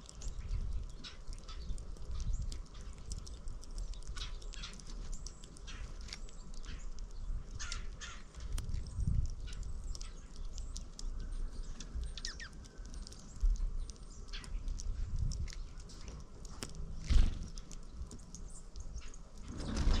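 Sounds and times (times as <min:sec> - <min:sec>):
small birds chirping: 0:00.0 - 0:20.0
wind gusts on microphone: 0:07.2 - 0:09.8, 0:14.8 - 0:15.6, 0:19.4 - 0:20.0.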